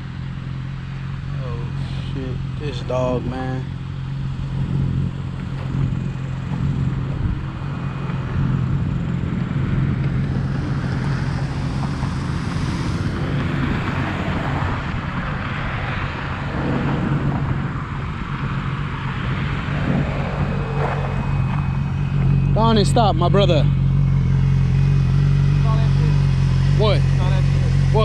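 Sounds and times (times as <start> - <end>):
rush of noise: 4.4 - 28.0
motorcycle engine idling: 21.2 - 28.0.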